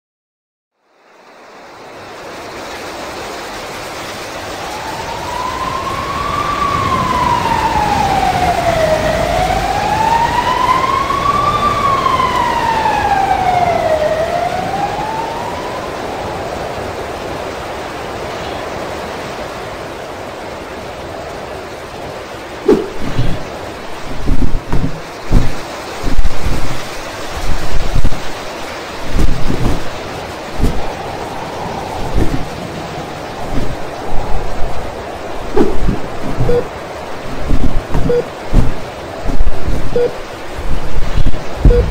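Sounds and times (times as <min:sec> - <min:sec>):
storm wind blowing: 0:01.5 - 0:41.9
siren wailing: 0:04.6 - 0:17.3, 0:22.7 - 0:41.9.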